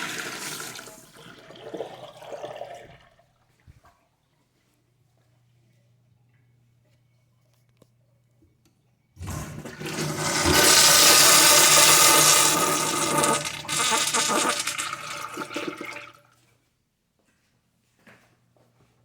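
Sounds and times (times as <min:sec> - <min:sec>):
toilet flushing: 0:00.0 - 0:03.6, 0:09.2 - 0:16.4.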